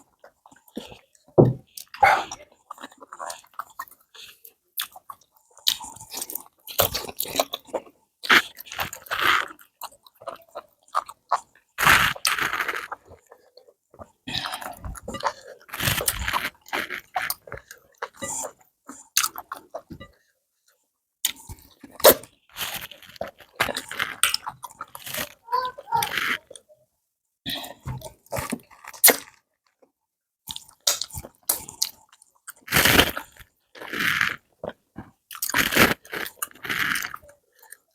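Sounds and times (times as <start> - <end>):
wet chewing and lip-smacking: 0.2 - 20.2.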